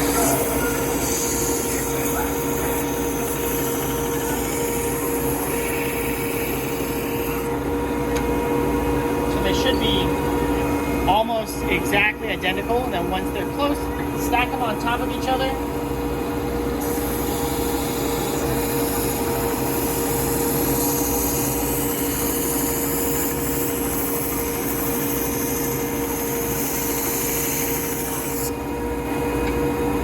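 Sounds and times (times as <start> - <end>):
wood being sanded: 0.0 - 7.5, 16.8 - 28.5
belt sander running: 0.0 - 13.6, 14.2 - 30.0.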